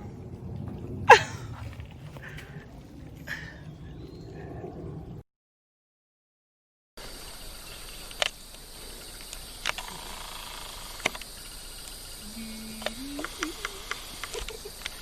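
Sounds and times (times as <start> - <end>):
insects droning: 7.0 - 15.0.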